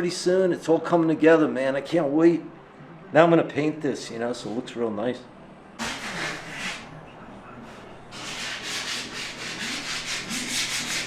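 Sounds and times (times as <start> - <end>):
hand sanding strokes: 5.8 - 6.9, 7.7 - 11.0.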